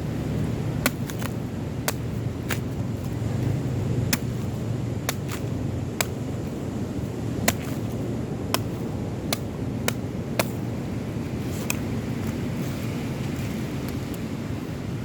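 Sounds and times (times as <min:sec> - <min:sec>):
surf and wind rumble: 0:00.0 - 0:15.0
blade striking coconut: 0:00.6 - 0:12.5.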